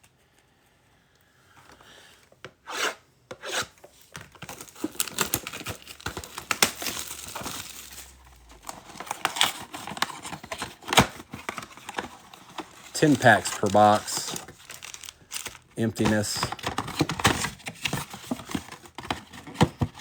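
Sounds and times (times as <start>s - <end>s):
packaging crinkling: 4.1s - 20.0s
packaging tearing: 4.3s - 19.5s.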